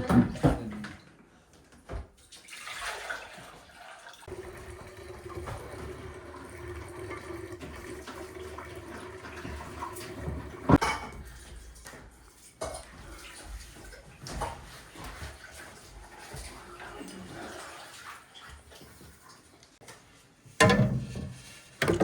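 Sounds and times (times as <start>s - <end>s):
water running: 2.2s - 19.8s.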